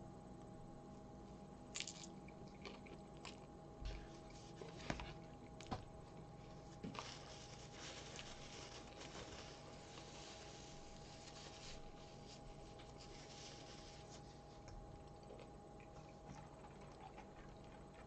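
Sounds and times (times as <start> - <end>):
person chewing food: 1.8 - 6.3, 14.6 - 18.0.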